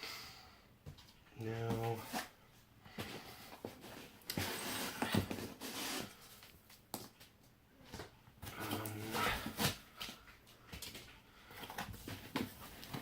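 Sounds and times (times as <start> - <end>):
packing rustling and scraping: 3.0 - 6.8, 8.4 - 10.2, 11.6 - 13.0.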